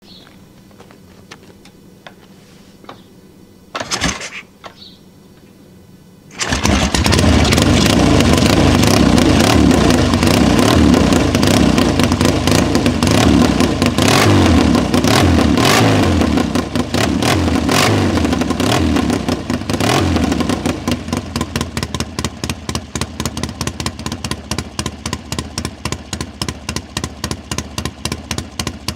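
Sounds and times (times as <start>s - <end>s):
motorcycle engine starting and revving: 3.7s - 4.9s, 6.3s - 28.9s
engine idling: 6.3s - 15.8s, 18.4s - 28.9s.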